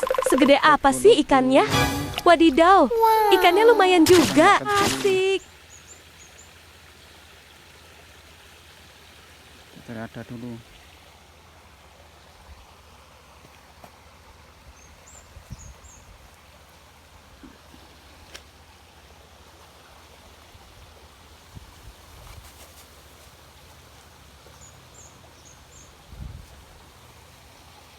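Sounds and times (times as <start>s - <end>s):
stream running water: 2.2s - 27.9s.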